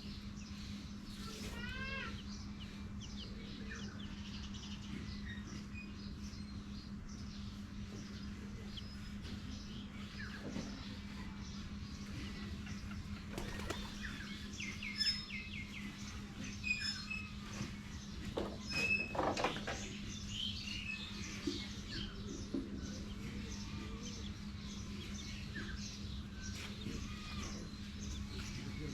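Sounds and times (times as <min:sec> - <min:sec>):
chicks peeping: 0:00.0 - 0:18.4, 0:19.8 - 0:28.9
steady low hum: 0:00.0 - 0:18.6.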